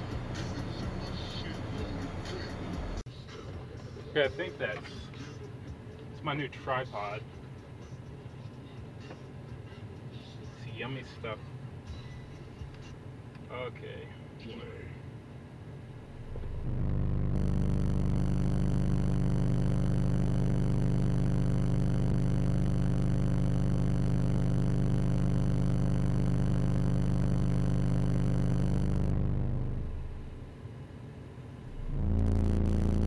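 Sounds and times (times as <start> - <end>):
subwoofer bass test tone: 16.0 - 30.5, 31.7 - 33.0.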